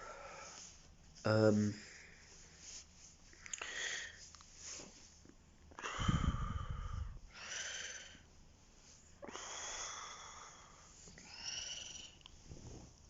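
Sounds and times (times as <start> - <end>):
person breathing: 0.0 - 0.9, 3.4 - 5.0, 5.8 - 8.3, 9.2 - 12.2.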